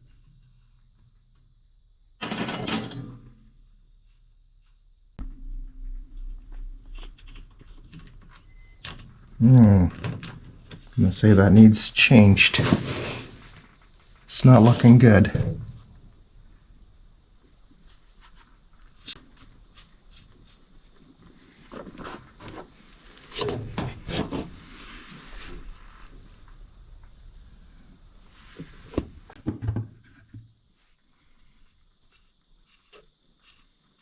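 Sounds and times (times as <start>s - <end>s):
high-pitched insect trill: 3.8s - 12.5s, 13.3s - 23.9s, 25.0s - 29.4s
knocks and clicks of tools: 23.4s - 24.6s.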